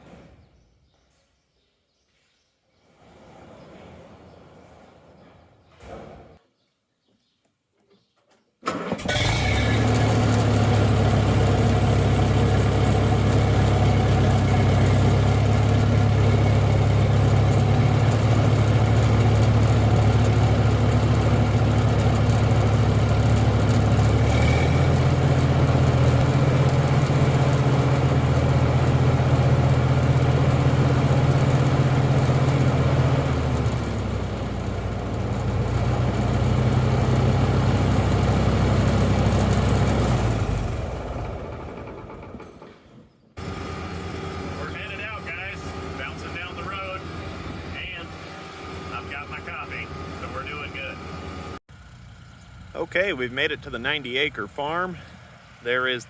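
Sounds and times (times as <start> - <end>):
vehicle engine starting and running: 8.6 - 56.0.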